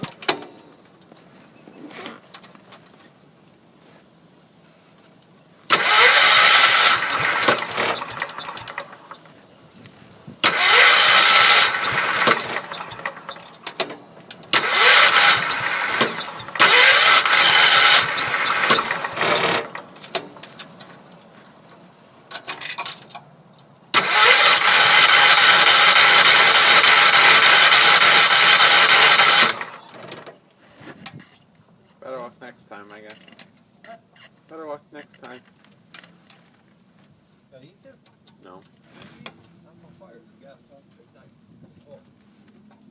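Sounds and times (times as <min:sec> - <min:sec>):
tractor engine cranking: 0:00.0 - 0:01.2, 0:05.7 - 0:09.6, 0:10.3 - 0:23.3, 0:23.9 - 0:30.4.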